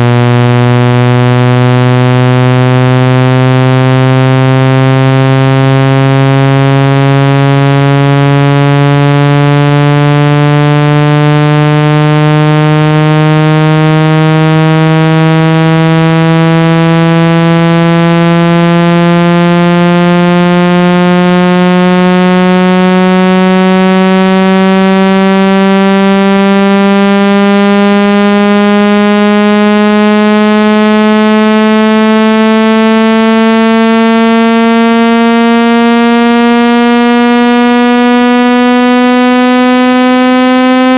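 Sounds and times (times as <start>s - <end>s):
buzzy tone sweeping upward: 0.0s - 40.9s.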